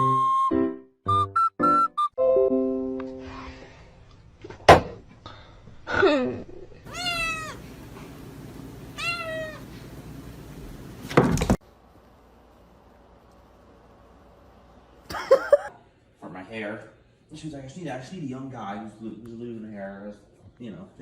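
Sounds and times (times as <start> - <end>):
cat meowing: 6.9 - 7.7, 9.0 - 9.7.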